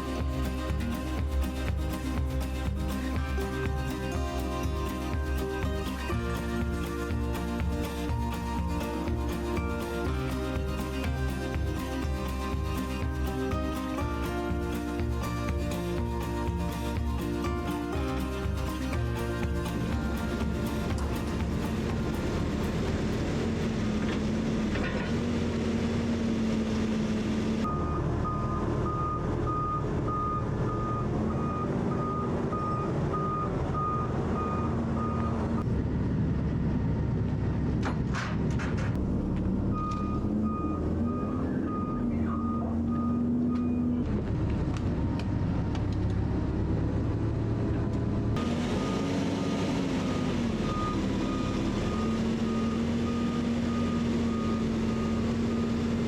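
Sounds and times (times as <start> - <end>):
diesel engine running: 0.0 - 56.0
truck reversing alarm beeping: 27.6 - 35.7, 39.2 - 44.2, 48.4 - 56.0.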